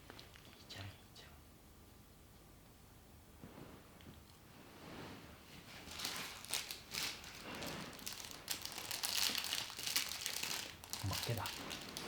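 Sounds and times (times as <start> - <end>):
plastic or paper crinkling: 5.8 - 12.0.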